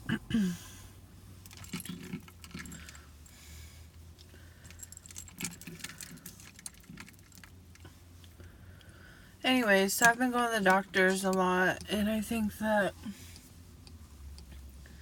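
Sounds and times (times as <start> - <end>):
jangly rattles: 1.5 - 3.4.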